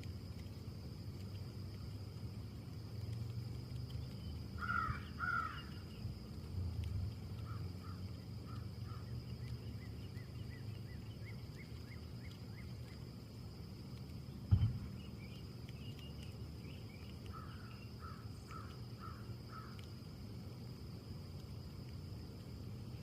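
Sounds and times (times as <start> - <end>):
wind low rumble: 0.0 - 18.8
bird calling: 16.7 - 19.8.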